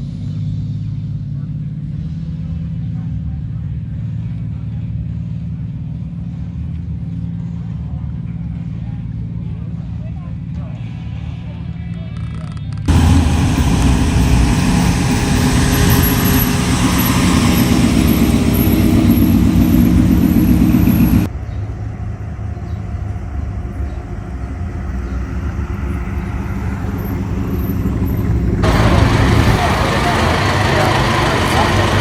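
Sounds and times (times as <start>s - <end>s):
car engine running: 12.7s - 21.3s, 22.0s - 32.0s.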